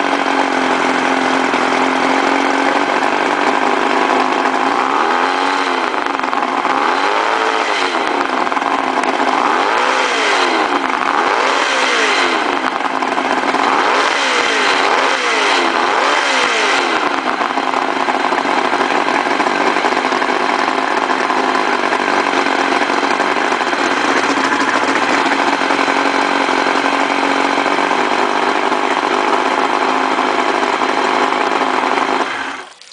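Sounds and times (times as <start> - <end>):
outboard engine revving: 0.0 - 32.7.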